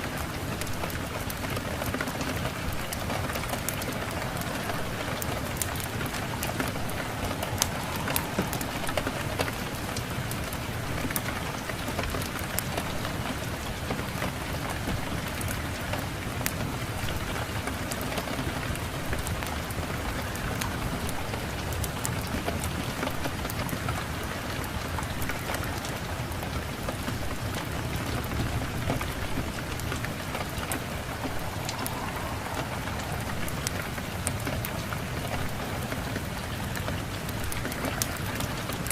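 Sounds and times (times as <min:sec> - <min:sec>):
steady rain: 0:00.0 - 0:38.9
wood fire crackling: 0:00.0 - 0:38.9.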